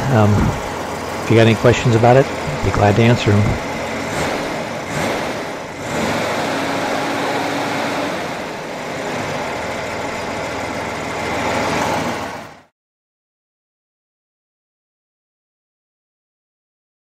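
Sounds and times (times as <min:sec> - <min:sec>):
engine running steadily: 0:00.0 - 0:12.7.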